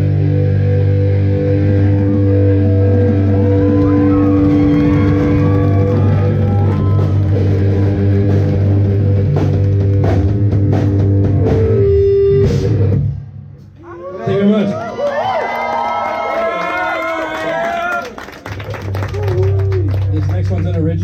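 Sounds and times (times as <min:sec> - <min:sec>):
rock band playing: 0:00.0 - 0:13.7.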